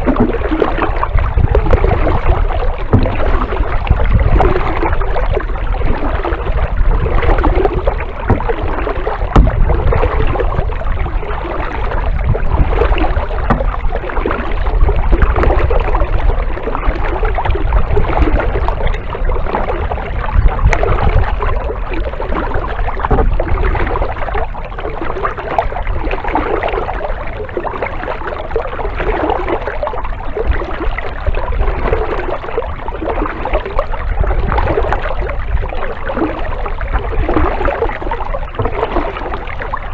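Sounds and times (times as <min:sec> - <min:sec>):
low rumble: 0:00.0 - 0:26.1
kayak paddle splashing water: 0:00.0 - 0:39.9.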